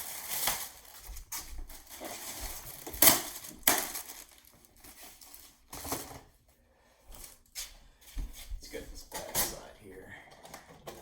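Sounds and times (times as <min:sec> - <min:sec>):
packaging rustling and crunching: 0:00.0 - 0:06.3.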